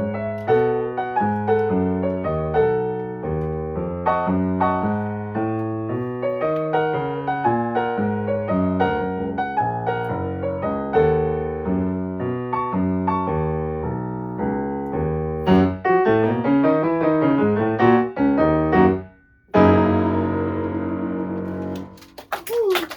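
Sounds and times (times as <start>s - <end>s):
solo piano melody: 0.0s - 22.3s
loud piano chord ringing: 4.0s - 7.4s.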